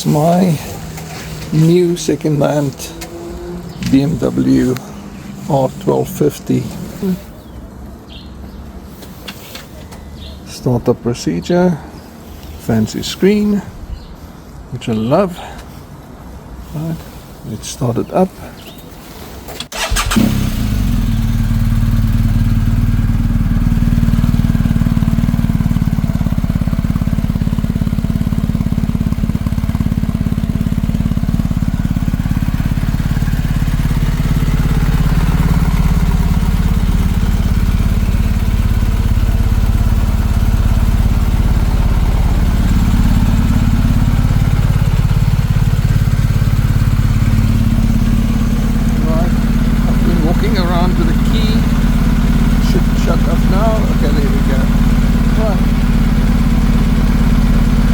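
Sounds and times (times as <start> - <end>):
motorcycle engine idling: 0.0 - 10.5, 19.7 - 57.9
motorcycle starter cranking: 19.4 - 57.9.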